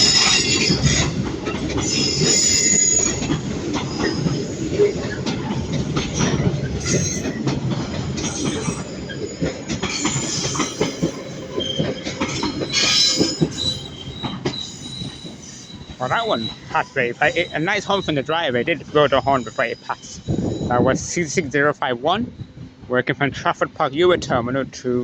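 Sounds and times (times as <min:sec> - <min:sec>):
high-pitched wheel squeal: 0:00.0 - 0:01.2, 0:01.8 - 0:05.2, 0:08.2 - 0:20.9
wheels clattering over rail joints: 0:00.0 - 0:20.6
freight train passing: 0:00.0 - 0:24.8.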